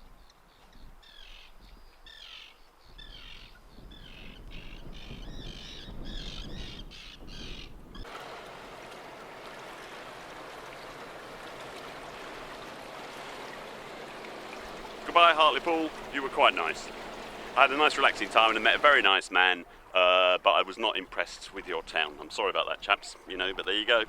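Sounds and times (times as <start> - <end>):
birds cawing: 10.3 - 19.0.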